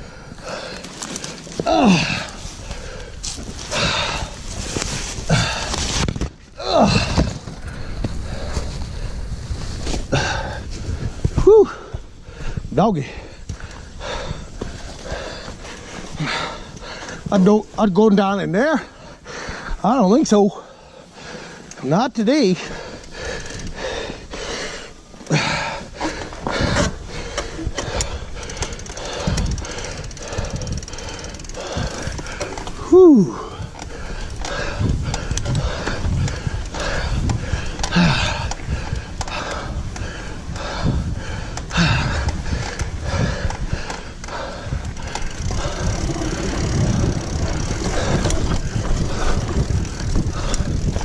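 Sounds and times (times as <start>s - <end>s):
wind rumble on microphone: 0.0s - 18.0s, 22.7s - 51.0s
mountain bike rattling on dirt trail: 0.0s - 51.0s
bike knocking over bumps: 44.9s - 51.0s.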